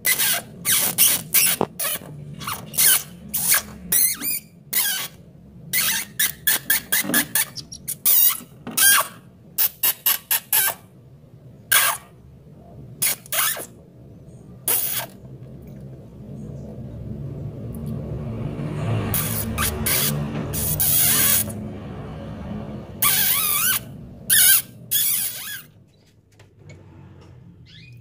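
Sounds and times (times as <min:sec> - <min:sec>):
canary singing: 0:00.1 - 0:10.8, 0:23.0 - 0:26.0, 0:27.6 - 0:28.0.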